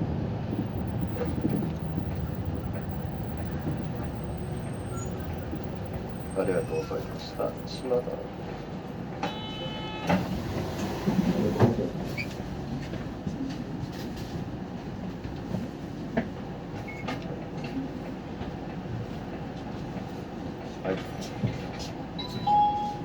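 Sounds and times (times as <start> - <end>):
diesel bus engine idling: 0.0 - 12.1
short electronic beep: 9.3 - 10.1, 22.2 - 23.0.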